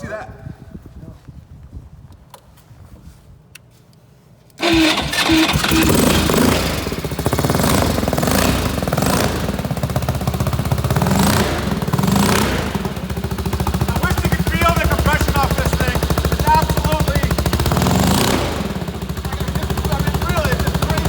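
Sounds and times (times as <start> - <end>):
motorcycle engine revving: 4.6 - 21.0.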